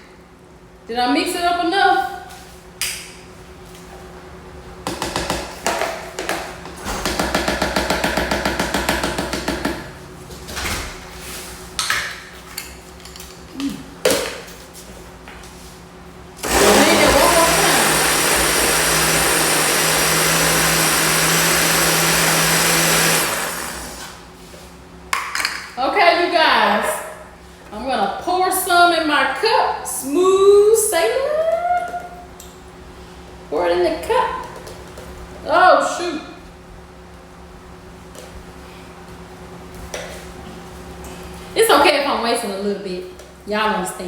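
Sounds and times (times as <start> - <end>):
blender running: 16.4 - 24.2.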